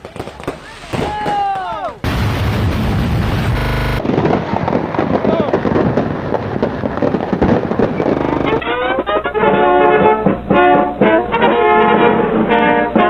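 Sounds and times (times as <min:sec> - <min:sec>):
fireworks crackling and popping: 0:00.0 - 0:13.0
brass music: 0:08.0 - 0:13.0.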